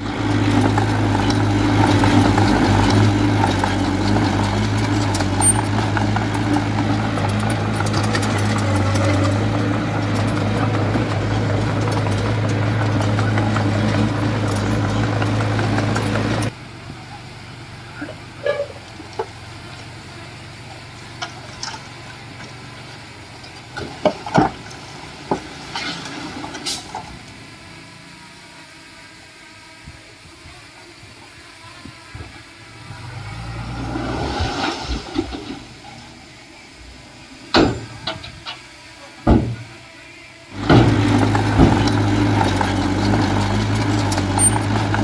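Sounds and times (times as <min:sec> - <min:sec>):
heavy diesel engine running: 0:00.0 - 0:45.0
knocks and clanks: 0:00.1 - 0:16.5, 0:23.5 - 0:27.1, 0:37.5 - 0:38.6, 0:39.2 - 0:39.8, 0:40.6 - 0:45.0.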